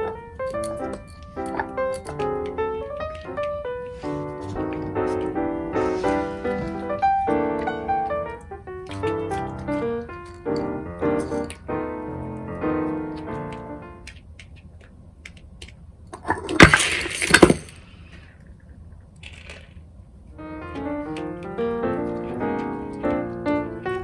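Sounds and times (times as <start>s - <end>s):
piano background music: 0.0s - 14.2s, 20.3s - 24.0s
dog food bowl clattering: 16.2s - 17.8s
bowl crashing over: 16.2s - 17.9s.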